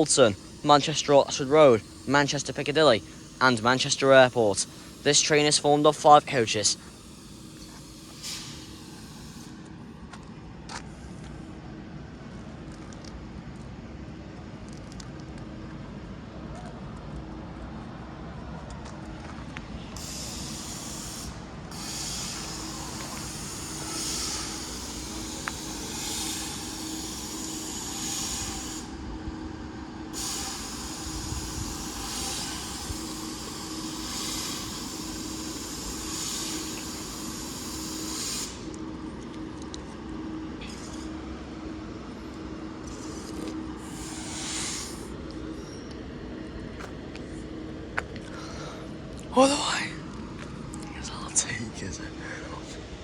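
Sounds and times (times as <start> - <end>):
hissing air: 0.0 - 9.9, 19.9 - 39.0, 40.3 - 46.0
train steady hum: 0.0 - 53.0.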